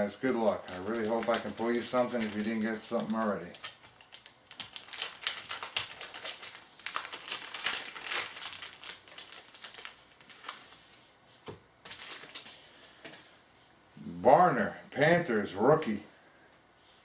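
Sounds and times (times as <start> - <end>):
plastic wrapper crinkling: 0.2 - 11.0, 11.8 - 12.8.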